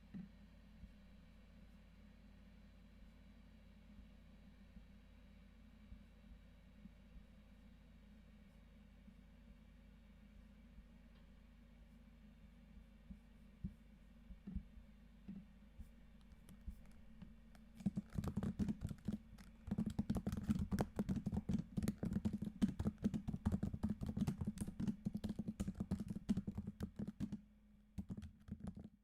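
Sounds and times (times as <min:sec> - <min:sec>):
computer keyboard typing: 0:16.2 - 0:27.4, 0:28.0 - 0:29.0.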